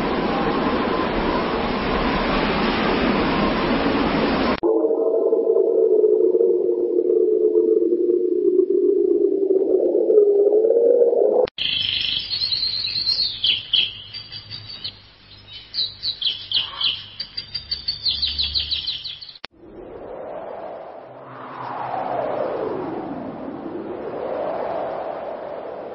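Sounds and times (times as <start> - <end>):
rushing noise: 0.0 - 9.8, 19.6 - 25.9
low wavering tone: 4.6 - 11.5
small birds chirping: 11.6 - 19.5.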